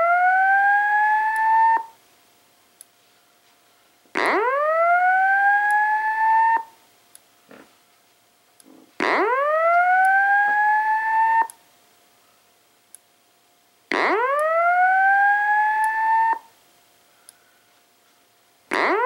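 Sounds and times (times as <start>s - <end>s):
fire alarm whoop tone: 0.0s - 2.0s, 4.2s - 6.7s, 9.0s - 11.6s, 13.9s - 16.5s.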